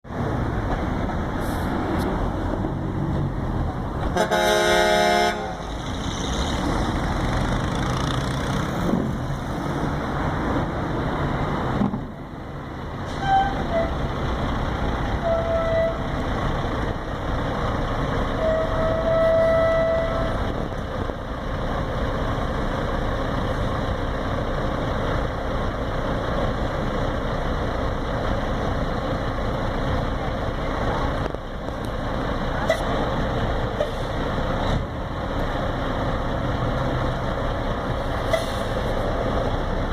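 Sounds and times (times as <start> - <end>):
diesel truck exhaust rumble: 0.1 - 39.9.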